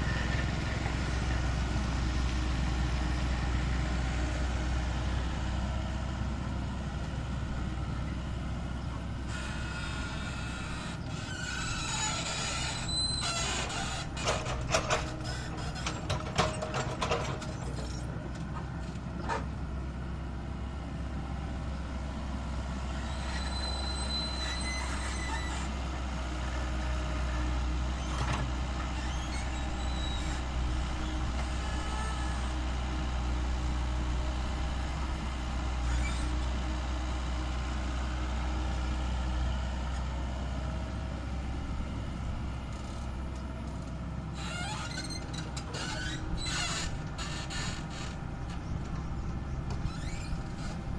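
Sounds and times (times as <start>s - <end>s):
heavy diesel engine rumbling: 0.0s - 50.9s
brief high squeals: 23.2s - 25.6s.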